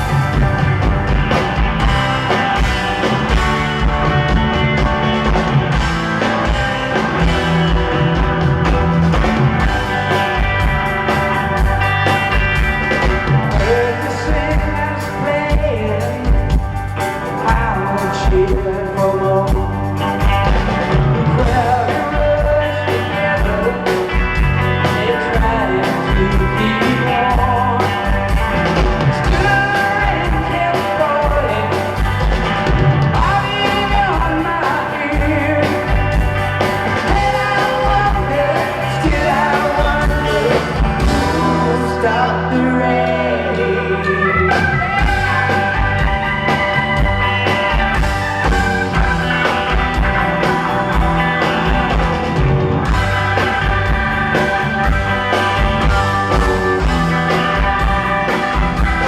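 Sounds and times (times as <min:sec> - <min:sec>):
rock band playing: 0:00.0 - 0:59.0
person singing: 0:13.0 - 0:16.6, 0:17.2 - 0:28.3, 0:29.0 - 0:32.2, 0:33.1 - 0:36.2, 0:36.9 - 0:49.3, 0:55.3 - 0:57.7.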